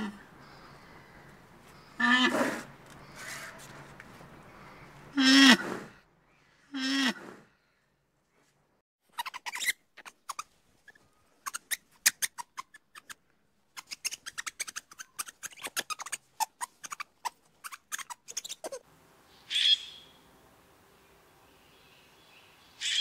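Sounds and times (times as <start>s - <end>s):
lemur clicks and chirps: 9.2s - 13.2s, 13.8s - 18.8s.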